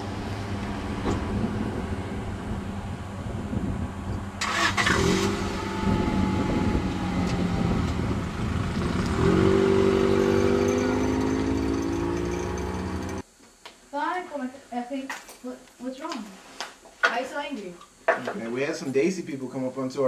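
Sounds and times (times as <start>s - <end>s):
car engine accelerating: 0.0s - 13.2s.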